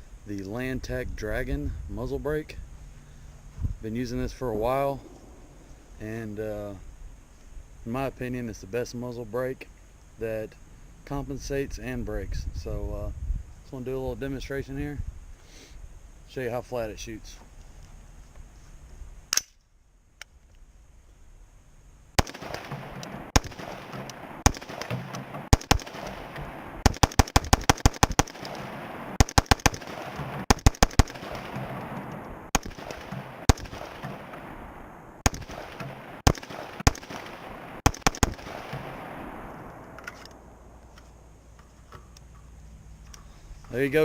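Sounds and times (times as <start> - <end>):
rifle gunshots with echo: 4.8 - 5.9, 22.2 - 40.8.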